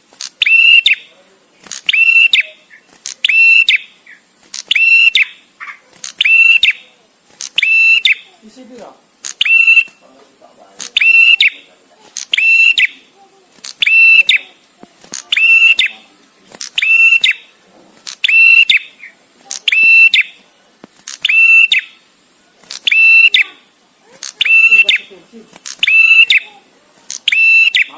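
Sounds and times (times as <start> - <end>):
bird calling high notes: 0.4 - 1.1, 1.8 - 8.4, 9.3 - 10.0, 11.0 - 11.7, 12.3 - 14.6, 15.3 - 16.1, 16.7 - 17.6, 18.2 - 20.4, 21.2 - 22.1, 22.8 - 25.1, 25.8 - 27.9.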